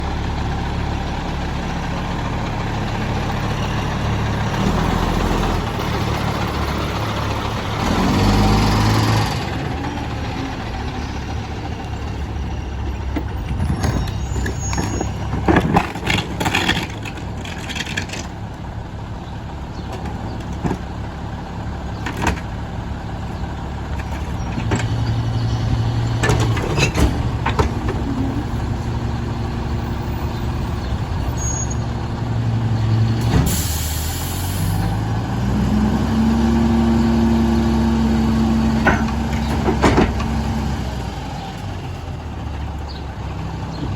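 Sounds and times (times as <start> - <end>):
diesel engine revving: 0.0 - 43.9
metal clanks and bangs: 24.0 - 28.9, 38.8 - 40.4.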